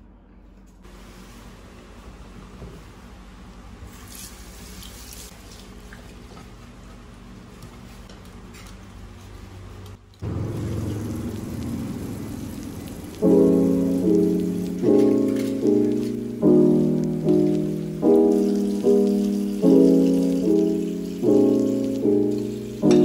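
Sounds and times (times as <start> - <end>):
steady rushing noise: 10.2 - 22.8
piano-like chords: 10.2 - 23.0.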